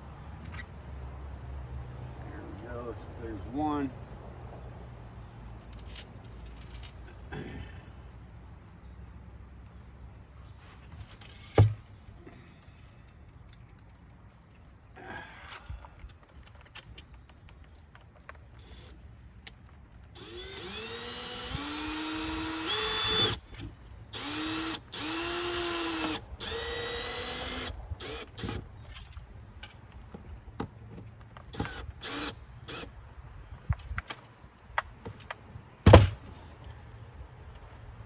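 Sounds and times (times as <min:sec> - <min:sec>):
power drill whine: 0:20.2 - 0:23.4, 0:24.2 - 0:28.6, 0:31.6 - 0:32.9.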